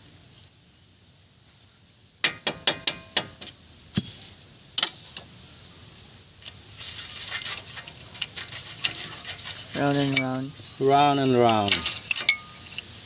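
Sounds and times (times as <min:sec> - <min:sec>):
metal tools clinking and clattering: 0:11.4 - 0:12.8.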